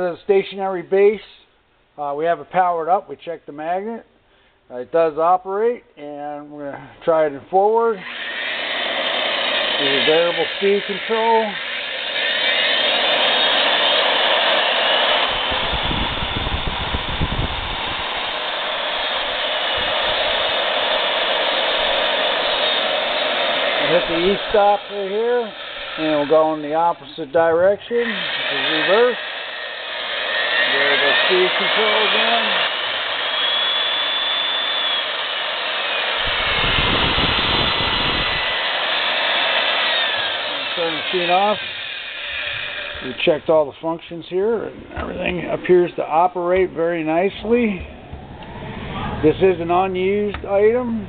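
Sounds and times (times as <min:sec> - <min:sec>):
drill press motor whirring: 0:08.0 - 0:43.1
low rumble: 0:44.6 - 0:51.0.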